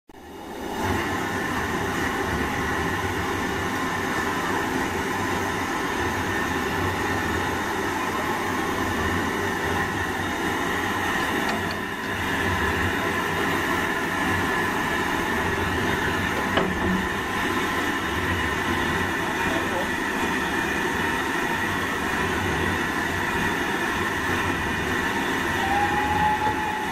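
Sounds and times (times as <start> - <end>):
steam train running: 0.2 - 26.9.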